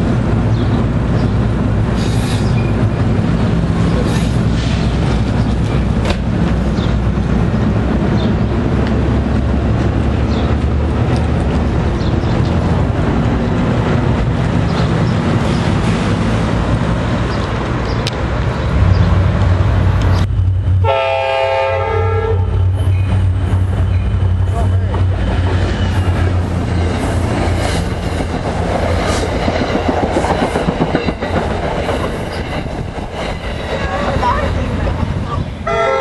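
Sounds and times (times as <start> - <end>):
train wheels rumbling on rail: 0.0 - 36.0
multi-chime train horn: 20.8 - 22.6, 35.6 - 36.0.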